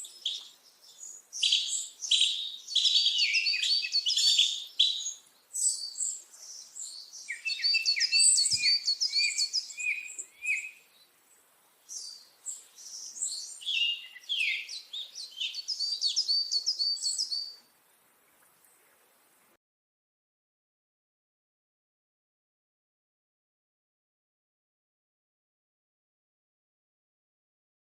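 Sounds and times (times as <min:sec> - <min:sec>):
bird chirping: 0:00.0 - 0:18.4.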